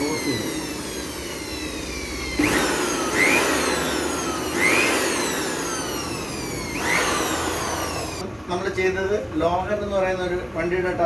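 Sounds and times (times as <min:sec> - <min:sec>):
air blasts: 0:00.0 - 0:08.2
turbocharger whine: 0:00.0 - 0:08.4.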